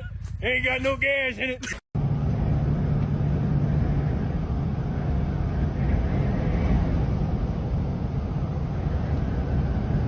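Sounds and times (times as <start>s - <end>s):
loud low rumble: 2.0s - 10.0s.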